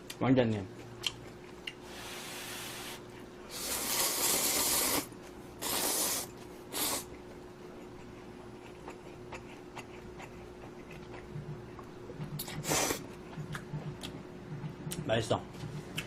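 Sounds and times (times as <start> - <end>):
person slurping noodles: 1.9 - 7.1, 12.4 - 13.0.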